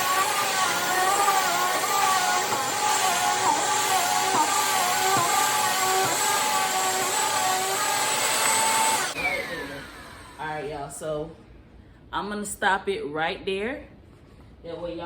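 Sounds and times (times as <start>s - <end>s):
vacuum cleaner on carpet: 0.0s - 10.3s.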